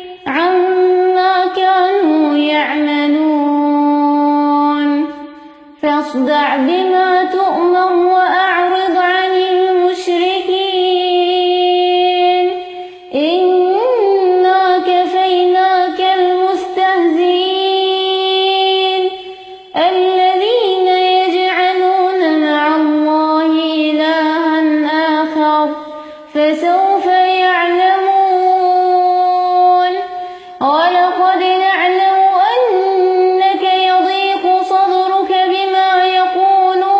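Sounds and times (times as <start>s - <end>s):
woman reciting melodically: 0.0s - 36.9s.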